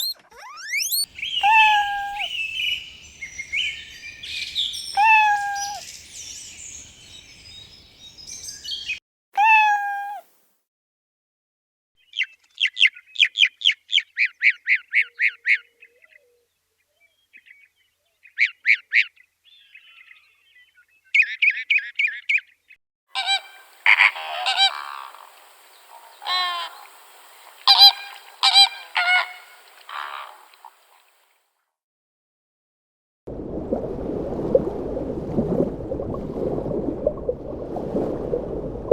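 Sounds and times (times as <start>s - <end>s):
goose-like poultry honking: 23.2s - 25.2s, 26.0s - 26.8s, 27.7s - 30.5s.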